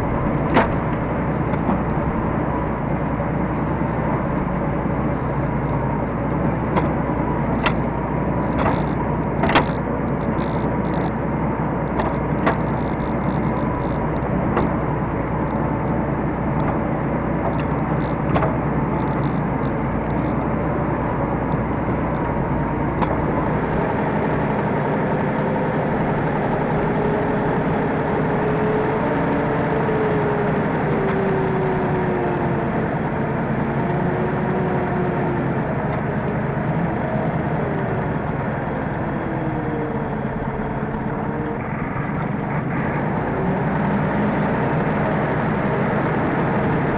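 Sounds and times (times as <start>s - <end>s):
tractor diesel engine running: 0.0s - 46.9s
wavering whine: 0.0s - 46.9s
sharp knocks and rattles: 8.5s - 11.1s.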